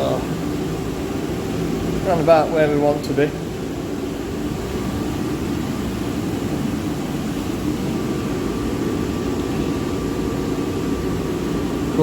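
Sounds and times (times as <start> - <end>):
boiler burner rushing: 0.0 - 12.0.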